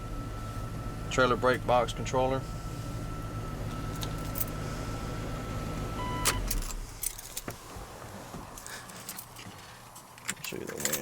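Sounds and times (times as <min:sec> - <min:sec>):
engine shutting off with clunk: 0:00.0 - 0:09.3
truck engine idling: 0:00.0 - 0:09.9
keys jangling and clicking: 0:08.6 - 0:09.5, 0:10.2 - 0:11.0.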